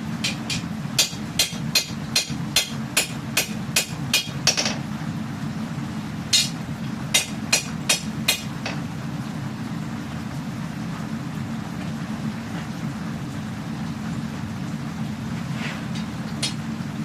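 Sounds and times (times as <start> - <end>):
steady low hum: 0.0 - 17.0
hammer striking steel on anvil: 0.2 - 4.8, 6.4 - 6.6, 7.2 - 8.8.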